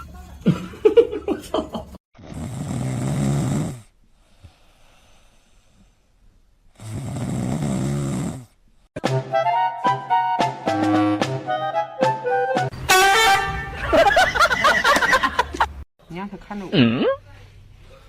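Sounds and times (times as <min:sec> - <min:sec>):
person snoring: 0:02.2 - 0:05.8, 0:06.7 - 0:08.6.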